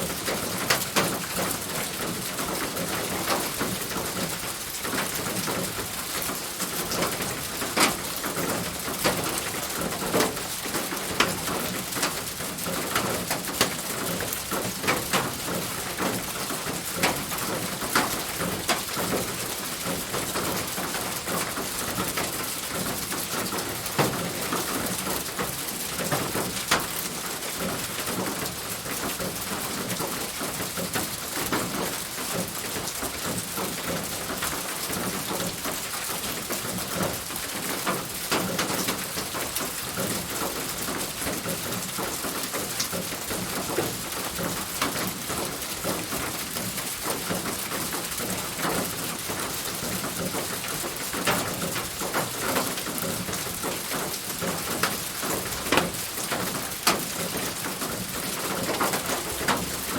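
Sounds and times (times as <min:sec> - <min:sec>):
rain pattering on roof: 0:00.0 - 0:59.9.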